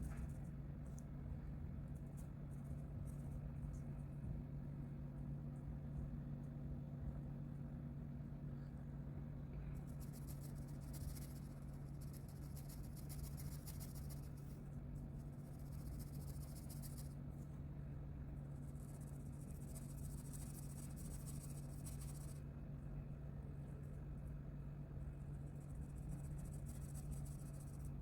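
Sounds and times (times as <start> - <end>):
low electrical hum: 0.0 - 28.0
coloring strokes scratching paper: 10.0 - 14.4.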